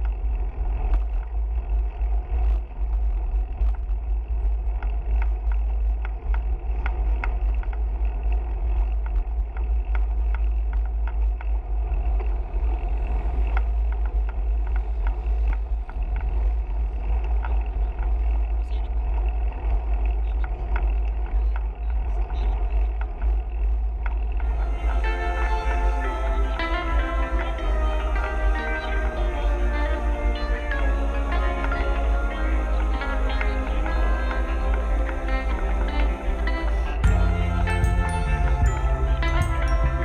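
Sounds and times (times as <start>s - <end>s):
wind rumble on microphone: 0.0s - 24.7s.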